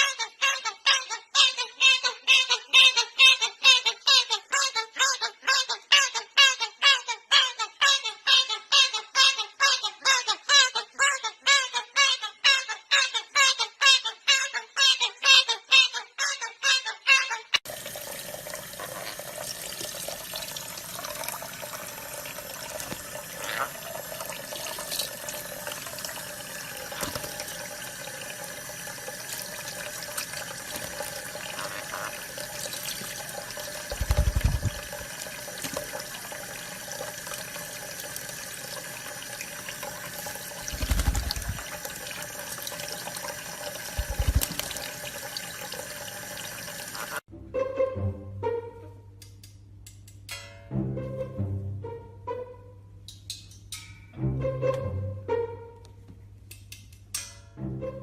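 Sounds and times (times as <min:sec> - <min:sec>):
running water: 0:17.6 - 0:47.2.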